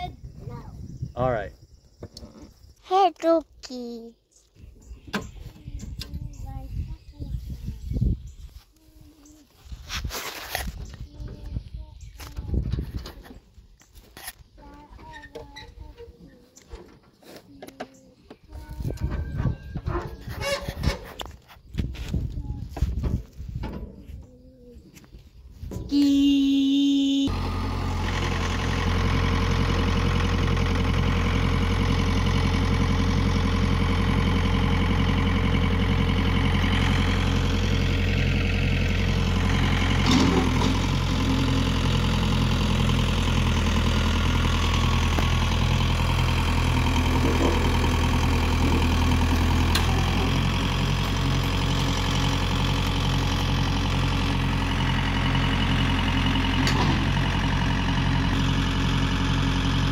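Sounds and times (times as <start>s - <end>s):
tractor engine starting and idling: 18.6s - 21.4s, 25.6s - 59.9s.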